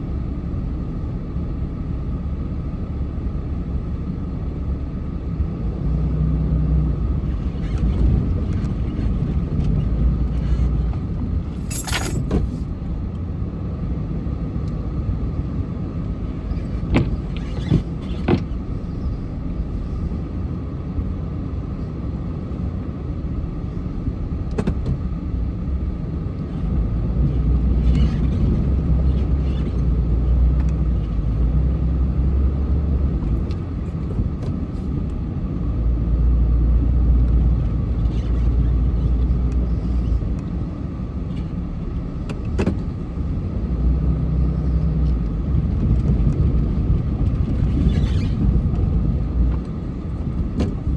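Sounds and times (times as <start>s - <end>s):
car engine and road noise: 0.0s - 50.9s.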